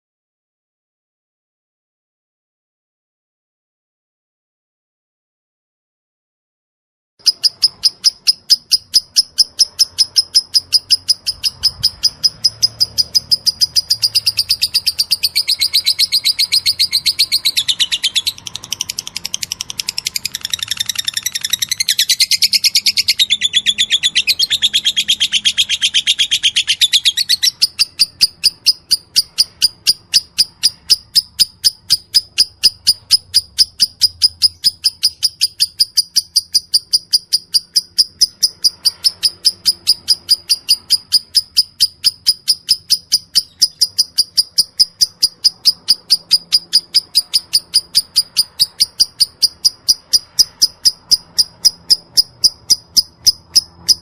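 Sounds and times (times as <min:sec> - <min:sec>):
lovebird chattering: 0:07.2 - 0:54.0
sharp high bird chirps: 0:07.2 - 0:54.0.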